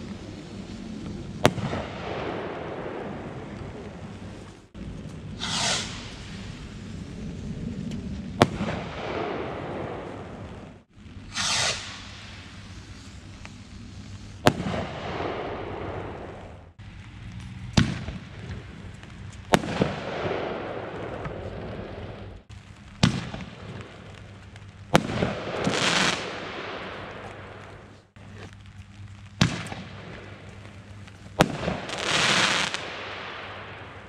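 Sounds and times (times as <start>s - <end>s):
firework bangs with echo: 1.4s - 3.4s, 5.4s - 6.5s, 8.4s - 10.6s, 11.3s - 12.4s, 14.4s - 16.3s, 19.5s - 22.1s, 23.0s - 23.9s, 31.4s - 34.0s
hissing firework burst: 5.2s - 16.7s, 22.8s - 28.6s, 31.2s - 34.0s.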